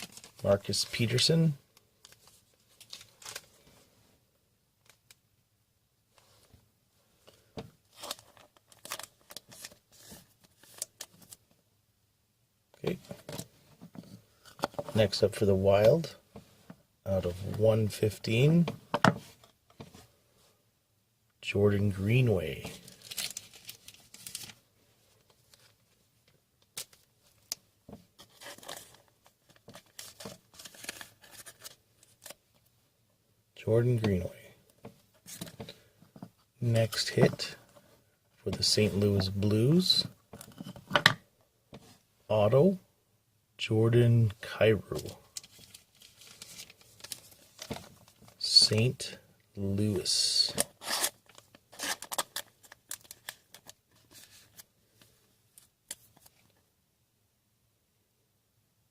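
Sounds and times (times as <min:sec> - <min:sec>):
cards and wrappers crinkling: 0:00.0 - 0:01.4, 0:02.0 - 0:03.7, 0:07.9 - 0:11.4, 0:22.7 - 0:24.6, 0:28.2 - 0:32.4, 0:45.0 - 0:48.9, 0:50.4 - 0:56.5.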